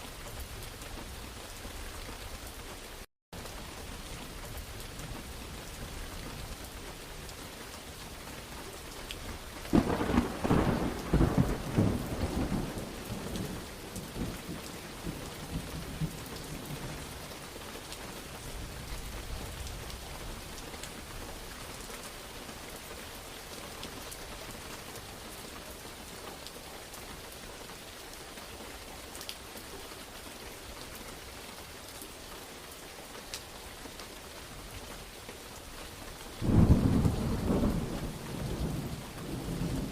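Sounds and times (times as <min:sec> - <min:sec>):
heavy rain falling: 0:00.0 - 0:39.9
thunder crack and rumble: 0:09.7 - 0:17.1, 0:36.4 - 0:39.9.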